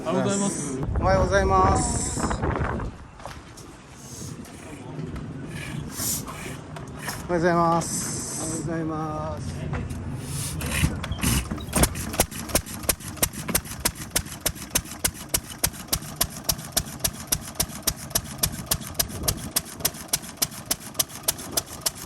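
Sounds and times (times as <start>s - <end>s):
engine bangs: 9.6s - 22.0s
stationary engine exhaust popping: 10.6s - 22.0s.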